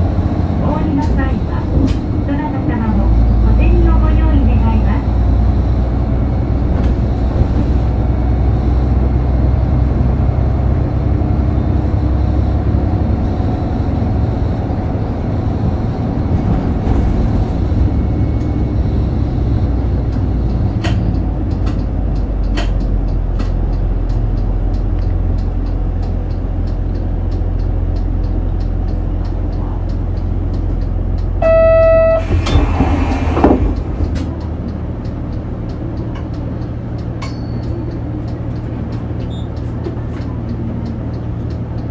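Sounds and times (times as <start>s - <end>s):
bus engine and road rumble: 0.0s - 41.9s
short electronic chime: 31.4s - 32.6s.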